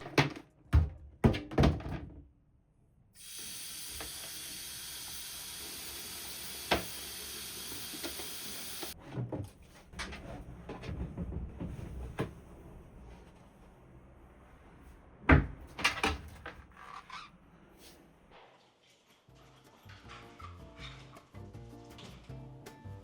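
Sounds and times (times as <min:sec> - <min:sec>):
spraying water hiss: 0:03.2 - 0:09.0.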